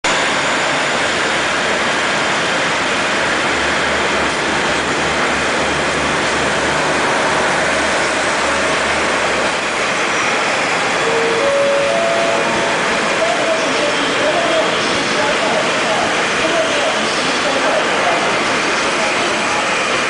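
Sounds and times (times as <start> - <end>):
train running noise: 0.0 - 20.0.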